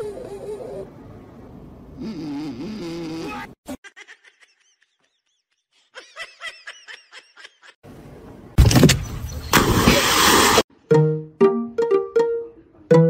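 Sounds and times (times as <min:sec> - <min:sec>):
dog splashing into lake: 0:09.5 - 0:10.6.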